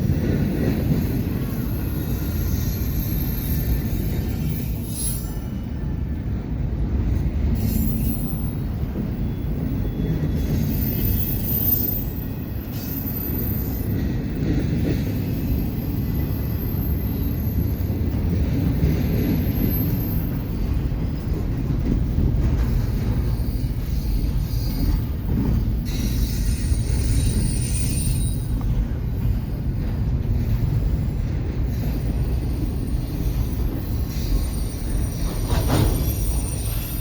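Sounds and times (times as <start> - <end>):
train cars rolling past: 0.0 - 37.0
high-pitched wheel squeal: 1.5 - 5.6, 7.6 - 13.9, 25.8 - 28.7, 32.1 - 37.0.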